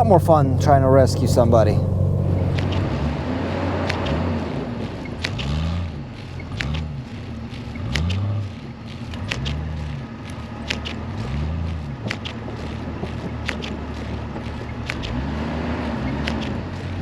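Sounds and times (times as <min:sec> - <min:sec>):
engine rising and falling: 0:00.0 - 0:05.5.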